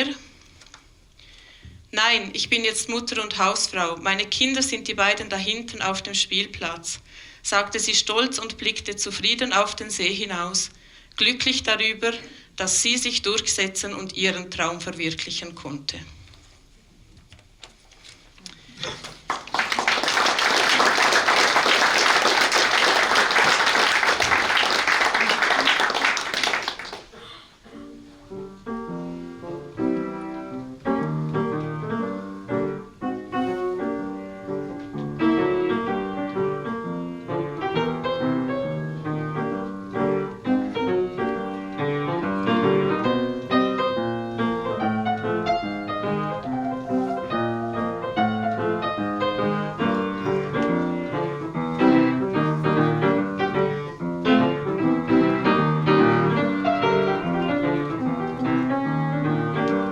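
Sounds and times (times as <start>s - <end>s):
solo piano: 27.6s - 59.9s.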